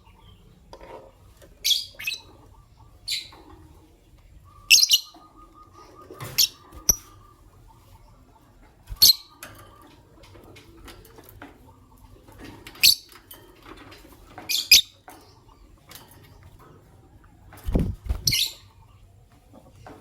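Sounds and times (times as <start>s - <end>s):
lovebirds chirping: 0.0s - 9.4s, 14.5s - 16.6s, 17.7s - 19.9s.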